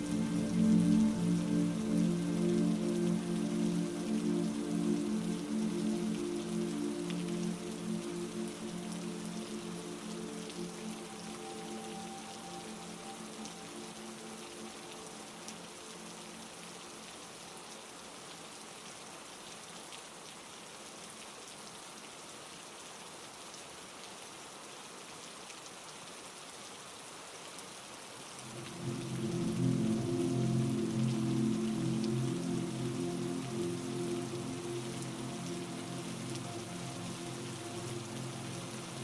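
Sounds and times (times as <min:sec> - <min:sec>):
low droning chord: 0:00.0 - 0:16.9, 0:28.4 - 0:39.0
heavy rain falling: 0:00.0 - 0:39.0.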